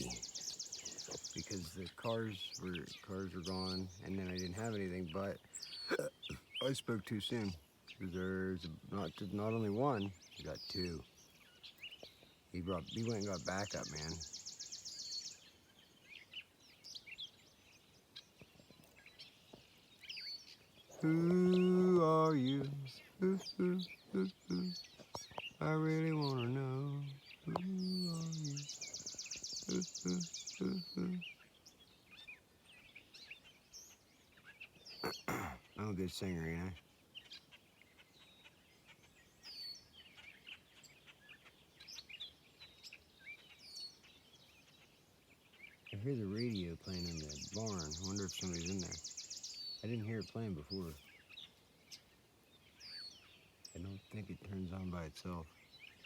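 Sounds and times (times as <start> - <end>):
bird trilling: 0.0 - 6.8, 20.9 - 31.2, 35.0 - 35.6
birds chirping: 0.0 - 56.0.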